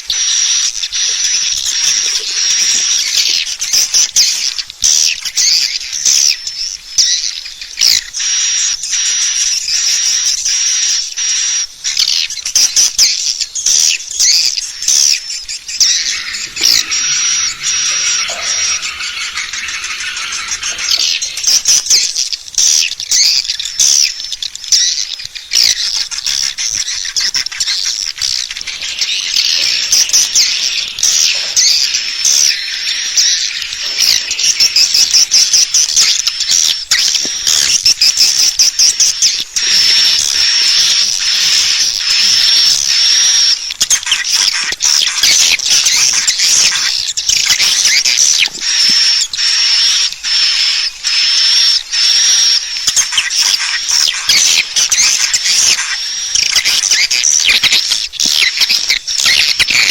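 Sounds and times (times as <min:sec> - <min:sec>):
swiftlets chirping: 0:14.6 - 0:23.0, 0:26.6 - 0:38.4.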